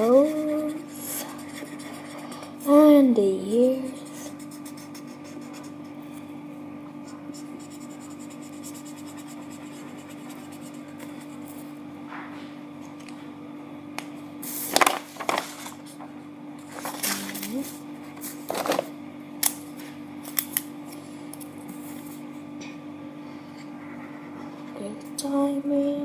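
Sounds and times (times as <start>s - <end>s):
colouring pencil scratching on paper: 0.0s - 2.6s, 3.8s - 6.0s, 7.1s - 11.6s.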